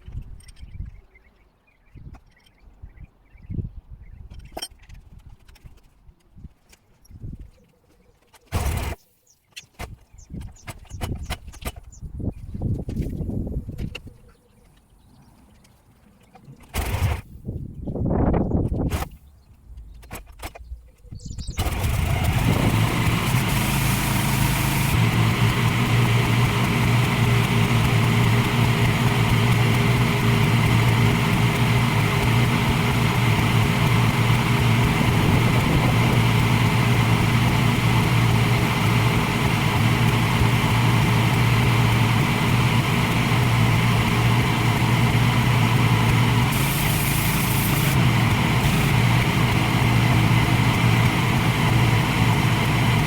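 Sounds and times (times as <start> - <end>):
pressure washer running: 16.8 - 17.2, 21.6 - 53.0.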